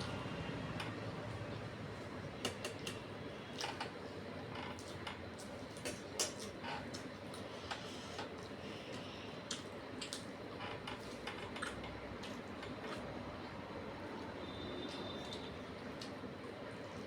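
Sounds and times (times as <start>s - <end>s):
mouth clicks and smacks chewing: 4.8s - 10.4s, 11.0s - 13.2s.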